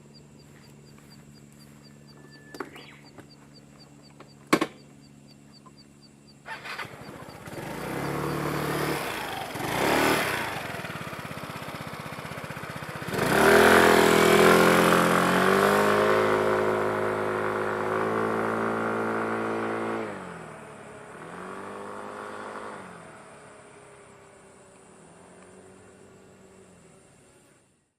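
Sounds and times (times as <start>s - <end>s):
small motorcycle engine revving: 6.4s - 27.7s.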